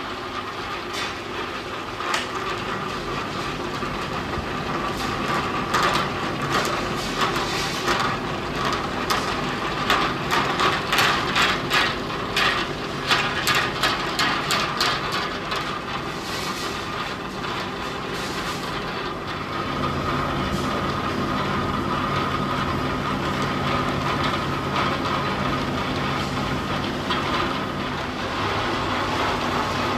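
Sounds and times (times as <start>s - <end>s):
factory machinery humming: 16.6s - 29.9s.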